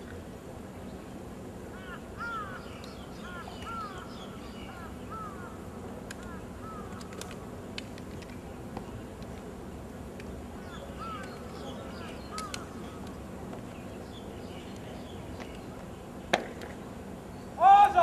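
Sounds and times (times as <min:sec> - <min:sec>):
low background hum: 0:00.0 - 0:18.0
bird calling: 0:01.7 - 0:05.6, 0:06.2 - 0:07.2, 0:10.6 - 0:13.0
faint sharp clicks: 0:06.0 - 0:06.3, 0:06.9 - 0:09.5, 0:11.2 - 0:11.5, 0:12.3 - 0:13.2.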